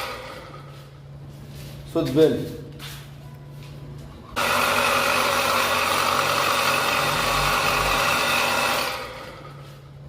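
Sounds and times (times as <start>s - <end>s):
water pump motor running: 0.0s - 0.9s, 4.4s - 10.0s
worn bearing grinding noise: 4.4s - 9.7s.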